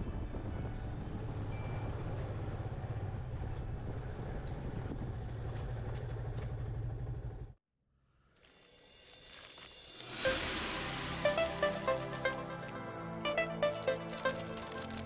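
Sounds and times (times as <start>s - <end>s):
motorcycle engine and road rumble: 0.0s - 7.6s.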